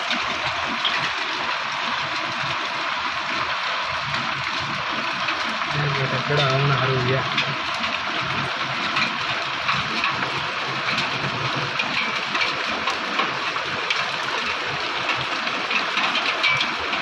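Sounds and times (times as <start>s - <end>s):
heavy rain hissing: 0.0s - 11.9s
hailstones striking: 4.0s - 17.0s.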